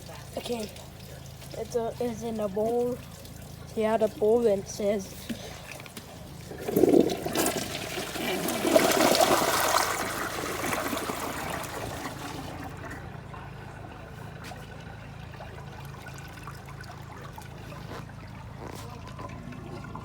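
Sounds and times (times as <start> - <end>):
toilet flushing: 0.0 - 20.0
water trickling into bowl: 0.0 - 20.0.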